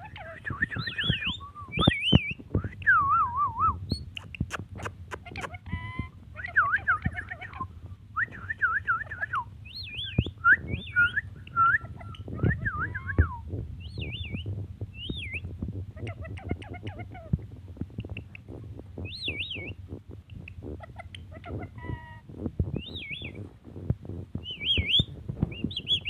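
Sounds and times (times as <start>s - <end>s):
parrot chattering: 0.0s - 2.4s, 4.0s - 7.7s, 10.7s - 13.1s, 16.0s - 23.4s
parrot whistling: 0.4s - 4.1s, 6.4s - 15.5s, 19.0s - 19.8s, 22.8s - 23.4s, 24.4s - 26.0s.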